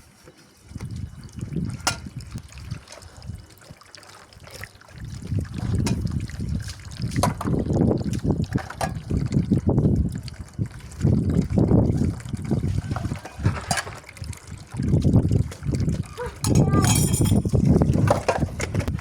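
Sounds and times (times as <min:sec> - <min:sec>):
water splashing and trickling: 0:00.1 - 0:19.0.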